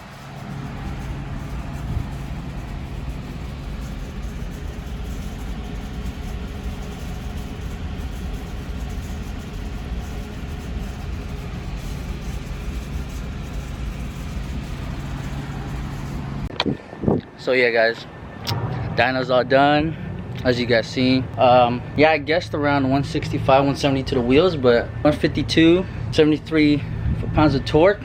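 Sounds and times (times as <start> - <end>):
motorcycle engine idling: 0.0 - 16.5.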